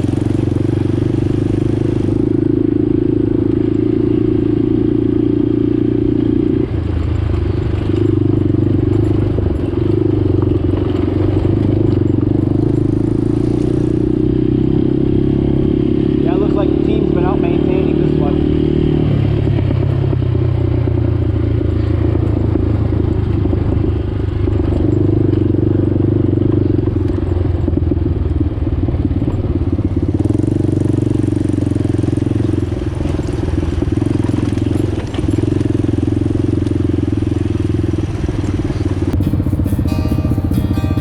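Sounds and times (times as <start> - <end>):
atv engine running: 0.0 - 41.0
music: 39.2 - 41.0.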